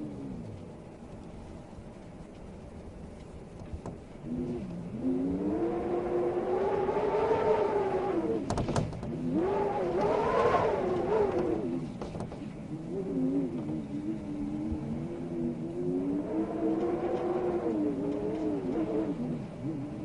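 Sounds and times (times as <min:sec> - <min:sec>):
faint wind hiss: 0:00.0 - 0:20.0
vehicle engine revving: 0:04.3 - 0:12.0.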